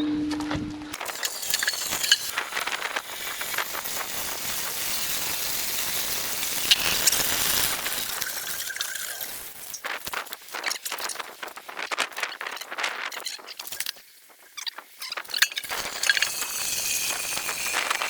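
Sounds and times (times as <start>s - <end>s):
fuel pouring into a container: 1.0s - 11.1s, 15.6s - 18.0s.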